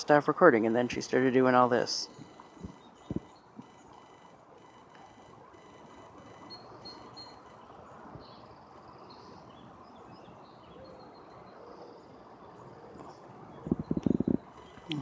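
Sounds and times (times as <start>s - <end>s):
outdoor background hiss: 0.0s - 15.0s
small birds chirping: 5.0s - 15.0s.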